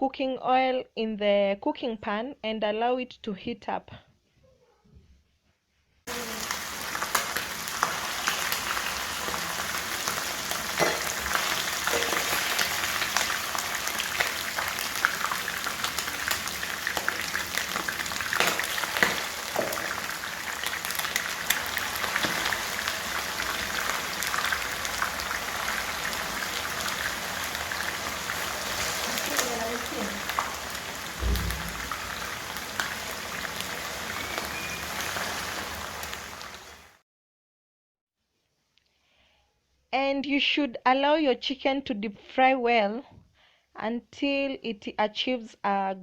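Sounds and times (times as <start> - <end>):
chicken deep-frying in oil: 6.1 - 37.0.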